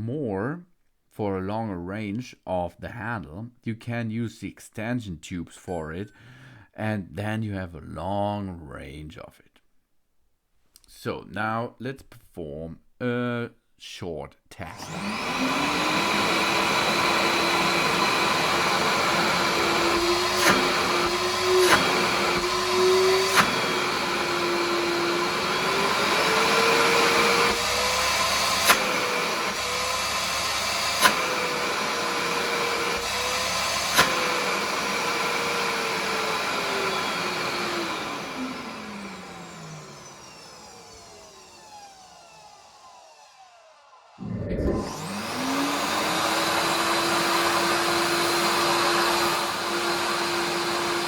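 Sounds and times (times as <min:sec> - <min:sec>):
shop vacuum motor whine: 0:14.7 - 0:51.0
vacuum motor spinning down: 0:14.7 - 0:51.0.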